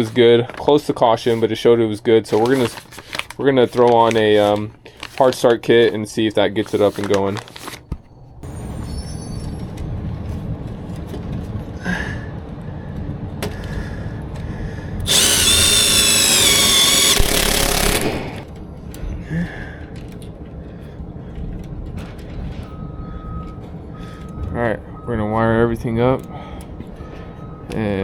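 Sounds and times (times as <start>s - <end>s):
power drill whining: 15.1s - 18.5s.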